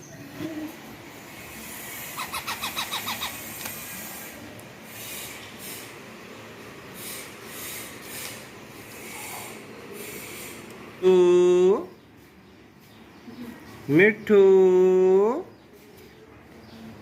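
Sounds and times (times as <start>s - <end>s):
parrot chirping: 1.4s - 4.3s.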